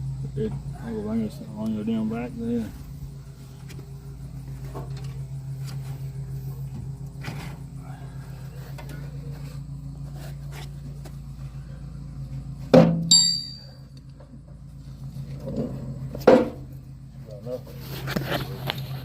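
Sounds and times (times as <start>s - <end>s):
low pulsing hum: 0.0s - 19.0s
metallic clink: 13.0s - 14.0s.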